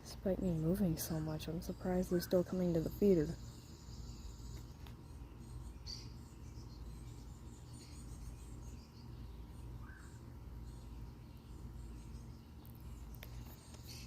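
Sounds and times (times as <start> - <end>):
faint bird chirps: 0.1 - 14.0.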